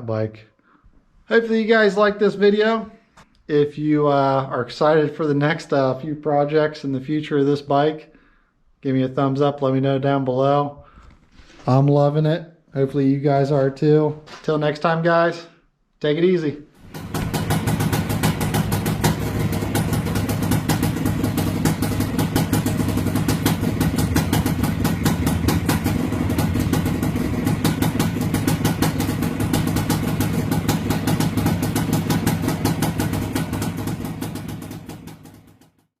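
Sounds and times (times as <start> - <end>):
motorcycle engine idling: 16.8 - 35.9.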